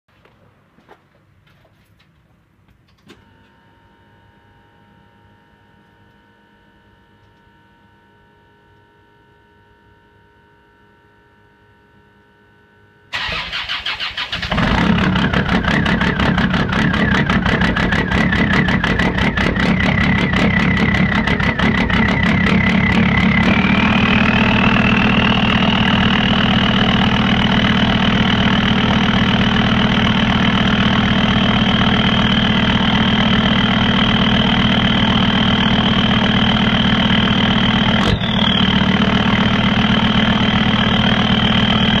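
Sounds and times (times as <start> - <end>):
diesel engine idling with clatter: 13.1 - 42.0
starter motor cranking: 13.2 - 16.4
high whine: 14.5 - 42.0.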